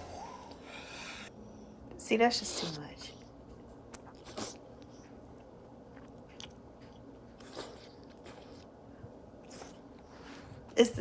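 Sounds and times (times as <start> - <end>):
person chewing cheese: 3.2 - 10.4.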